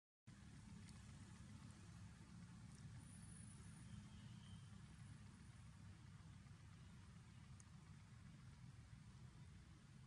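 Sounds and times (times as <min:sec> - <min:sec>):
faint low hum: 0:00.3 - 0:10.0.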